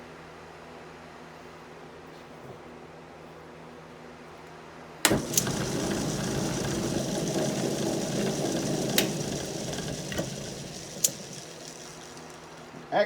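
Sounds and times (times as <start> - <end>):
lathe switch click: 5.1 - 12.9
wood lathe turning wood: 5.1 - 13.0.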